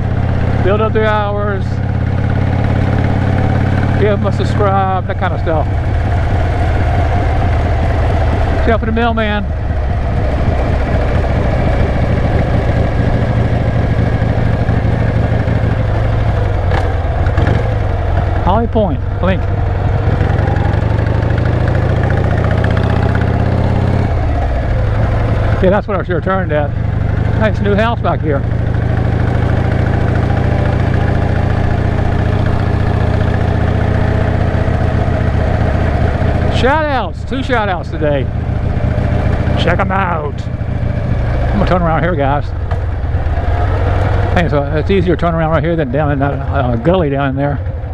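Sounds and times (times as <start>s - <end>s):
motorcycle engine running: 0.0s - 47.9s
wind noise: 5.8s - 15.0s.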